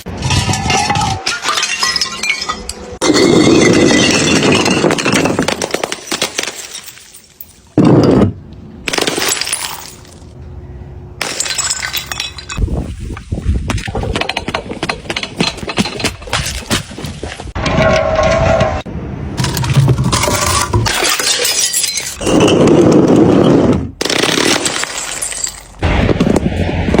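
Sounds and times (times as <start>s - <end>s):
glass smashing: 0.2s - 8.2s, 8.9s - 10.2s, 11.2s - 12.7s, 19.5s - 22.6s, 24.1s - 25.8s
glass bottles clattering down stairs: 0.2s - 8.4s, 11.2s - 12.7s, 13.8s - 17.1s, 19.4s - 22.7s.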